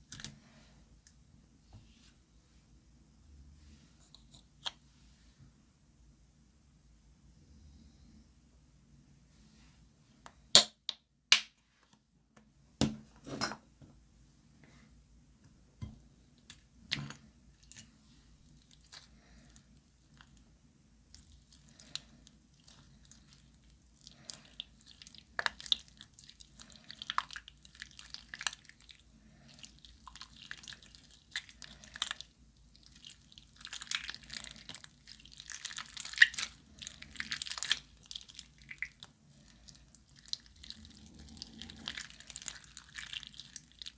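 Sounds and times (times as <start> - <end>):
slime crackling and popping: 21.1 - 43.9.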